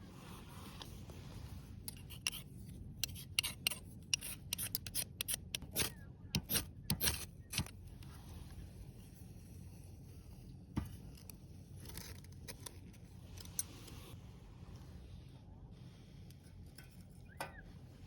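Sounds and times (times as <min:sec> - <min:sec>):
clicks and scrapes of small objects: 0:00.7 - 0:14.2.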